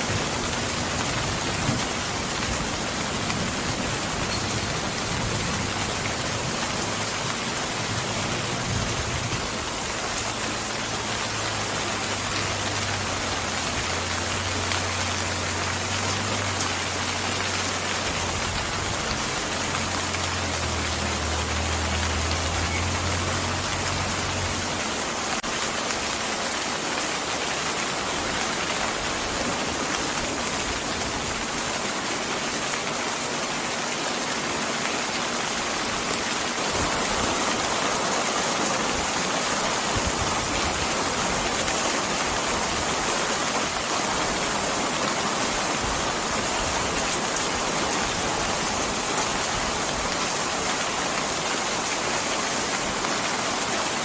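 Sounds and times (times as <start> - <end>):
steady rain hissing: 0.0 - 54.0.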